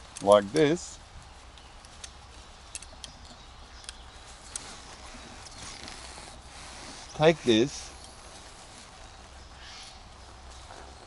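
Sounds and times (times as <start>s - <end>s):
light clicks of cord: 1.5s - 6.0s
cord rustling: 4.1s - 9.4s.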